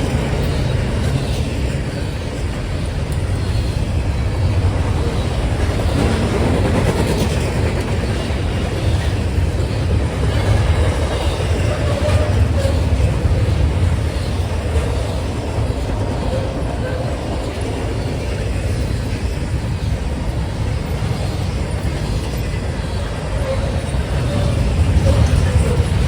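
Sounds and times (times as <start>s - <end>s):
clickety-clack of train cars: 0.0s - 26.0s
train wheels rumbling on rail: 0.0s - 26.0s.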